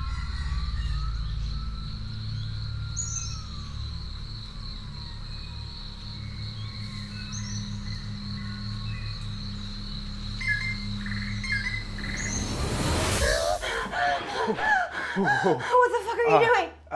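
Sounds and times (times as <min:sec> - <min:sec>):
low steady drone: 0:00.0 - 0:15.6
insect trill: 0:00.0 - 0:16.6
bird chirps: 0:06.2 - 0:13.4.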